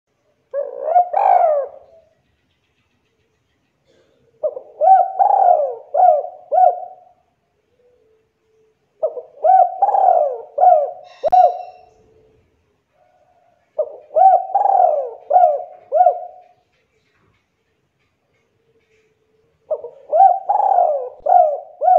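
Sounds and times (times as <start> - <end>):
dove cooing: 0.5 - 2.1, 3.8 - 8.2, 9.0 - 12.4, 13.1 - 16.7, 18.8 - 21.9.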